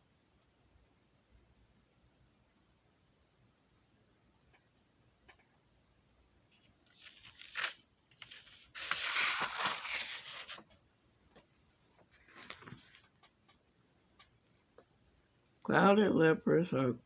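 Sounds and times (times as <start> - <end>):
rustling and scraping handling noise: 6.5 - 13.3.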